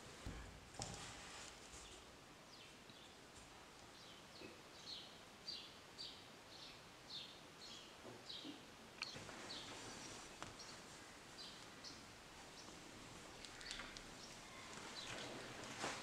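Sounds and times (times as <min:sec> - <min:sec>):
bird chirping: 0:03.9 - 0:15.4.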